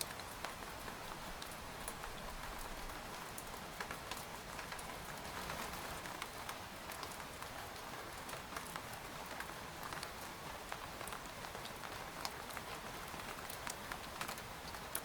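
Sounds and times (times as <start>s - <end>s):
rain pattering on a tent: 0.0s - 15.0s
raindrops ticking on fabric: 0.0s - 15.0s.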